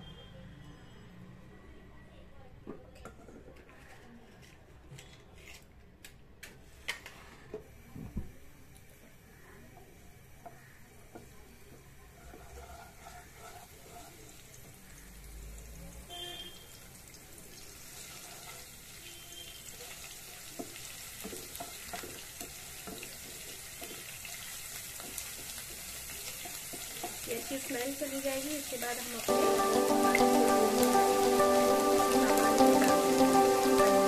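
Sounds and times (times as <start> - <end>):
paste sizzling in hot oil: 9.3 - 15.6, 16.8 - 34.0
spatula scraping and tapping pan: 10.4 - 14.4, 20.6 - 27.8.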